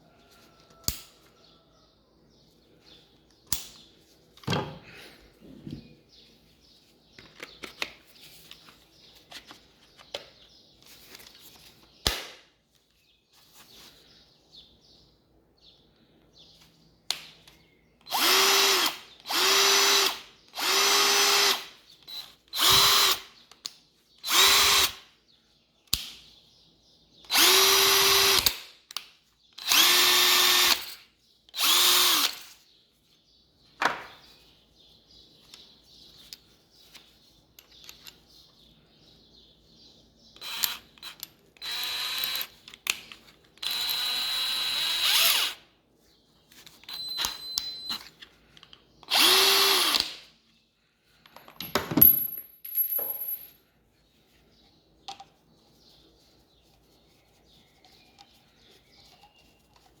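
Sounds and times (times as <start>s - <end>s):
drill motor winding down: 18.1s - 23.2s, 27.3s - 28.5s, 29.6s - 30.9s, 31.6s - 32.4s, 43.6s - 45.6s, 49.1s - 50.0s
impact drill bursts: 18.1s - 23.3s, 24.2s - 25.0s, 27.3s - 28.6s, 29.6s - 31.0s, 31.6s - 32.5s, 40.4s - 42.5s, 43.6s - 45.6s, 49.1s - 50.2s.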